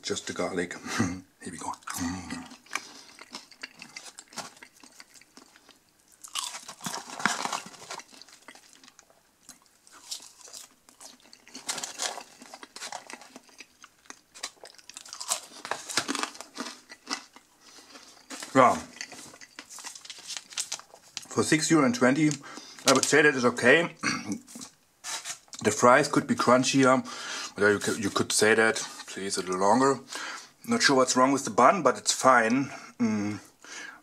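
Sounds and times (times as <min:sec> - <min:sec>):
person crunching fries: 0:01.8 - 0:21.3.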